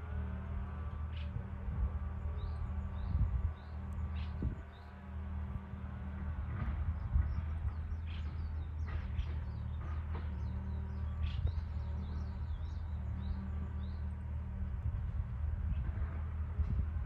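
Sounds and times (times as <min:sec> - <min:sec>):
low machine hum: 0:00.0 - 0:17.0
bird chirping: 0:07.2 - 0:14.2.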